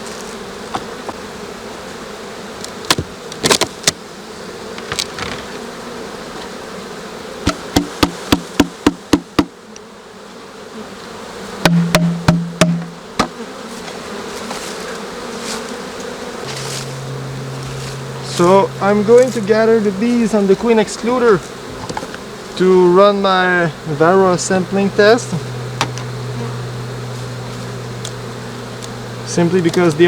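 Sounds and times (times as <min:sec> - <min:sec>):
bees buzzing: 0:00.0 - 0:30.0
knocks and taps on hive: 0:00.7 - 0:01.3, 0:02.6 - 0:04.0, 0:04.7 - 0:05.6, 0:07.4 - 0:09.9, 0:11.6 - 0:14.6, 0:25.8 - 0:26.1, 0:28.8 - 0:30.0.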